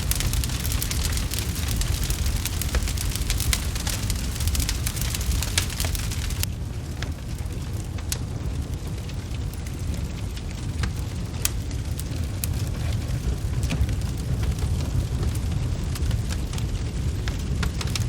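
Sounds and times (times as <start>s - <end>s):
steady low rumble: 0.0s - 18.0s
wood fire crackling and popping: 0.0s - 18.0s.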